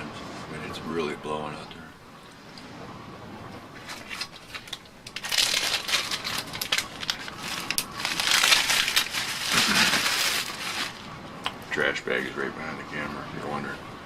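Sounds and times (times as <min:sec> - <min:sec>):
plastic bag rustling and crinkling: 0:03.8 - 0:11.2.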